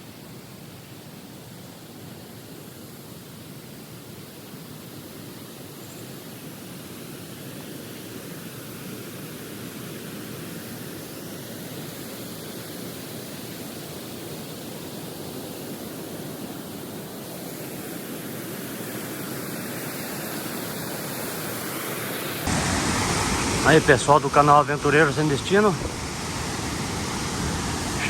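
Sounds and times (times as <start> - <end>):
waterfall rushing: 17.4 - 28.0.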